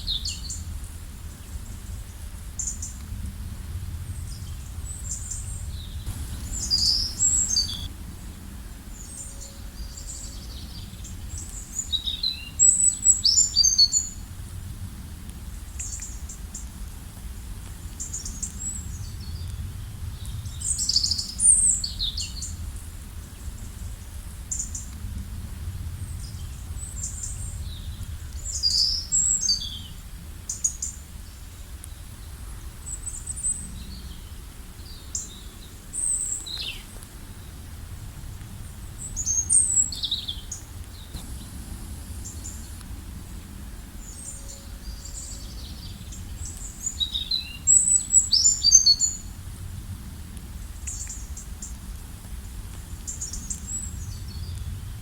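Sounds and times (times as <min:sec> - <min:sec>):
low background rumble: 0:00.0 - 0:55.0
songbirds chirping and trilling: 0:04.1 - 0:14.3, 0:25.9 - 0:37.7, 0:38.4 - 0:49.4.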